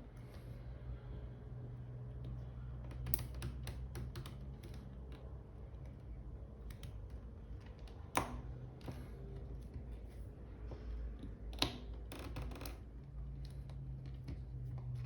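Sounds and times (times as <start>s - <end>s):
clicks and taps of tools: 2.2s - 5.9s.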